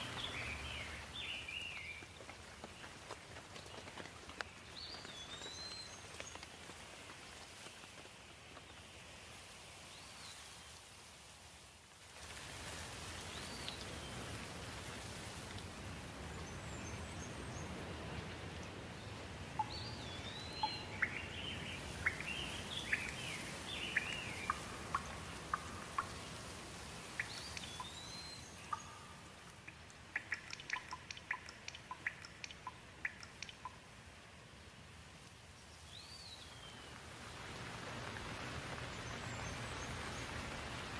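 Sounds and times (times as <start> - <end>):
small birds calling: 0.0 - 3.0, 19.0 - 33.8
flowing water rushing: 17.7 - 33.7, 36.8 - 40.9.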